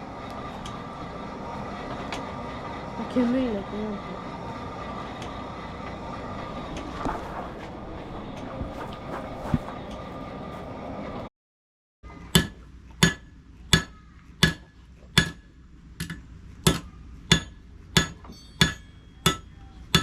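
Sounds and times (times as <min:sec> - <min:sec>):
hammer striking metal on anvil: 0:12.3 - 0:20.0.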